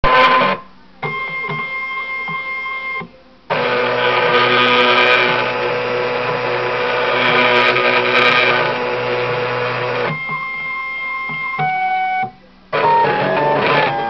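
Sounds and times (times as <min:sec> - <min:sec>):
steady machine hum: 0:00.0 - 0:14.0
stepper motors whining: 0:03.5 - 0:10.4, 0:12.8 - 0:14.0.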